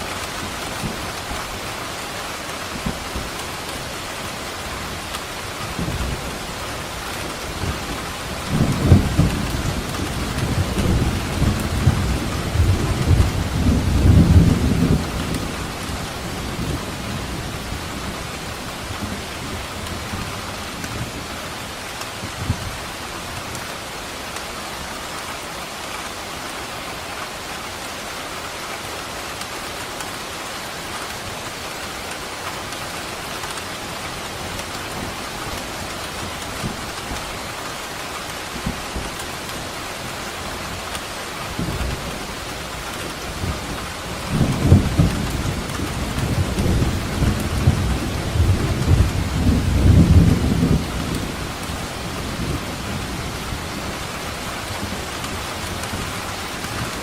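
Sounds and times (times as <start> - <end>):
steady rain: 0.0 - 57.0
thunder rumbling: 5.7 - 20.3, 41.5 - 57.0.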